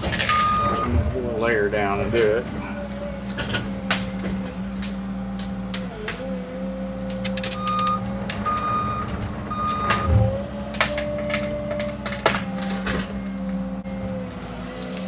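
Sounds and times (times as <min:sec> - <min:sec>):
excavator diesel engine and hydraulics: 0:00.0 - 0:15.0
travel alarm beeping: 0:00.2 - 0:01.1, 0:07.3 - 0:10.3.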